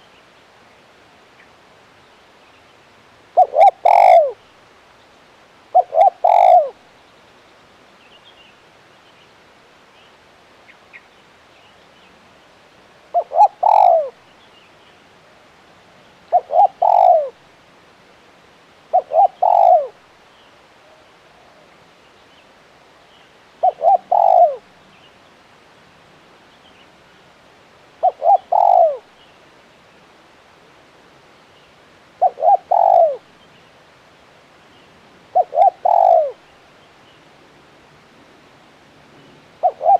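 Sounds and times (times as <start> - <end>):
dove cooing: 3.4 - 4.4, 5.7 - 6.8, 13.1 - 14.2, 16.3 - 17.4, 18.9 - 20.0, 23.6 - 24.7, 28.0 - 29.1, 32.2 - 33.3, 35.3 - 36.4, 39.6 - 39.9.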